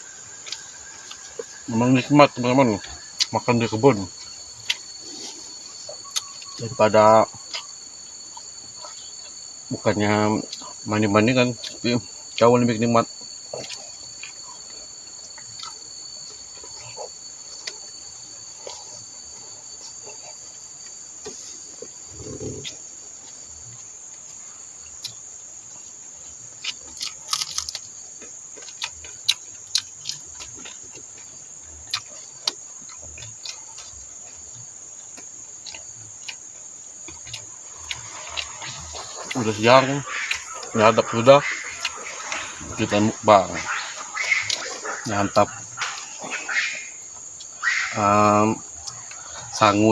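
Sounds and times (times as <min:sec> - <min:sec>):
high-pitched insect chorus: 0:00.0 - 0:49.9
lower insect tone: 0:00.0 - 0:49.9.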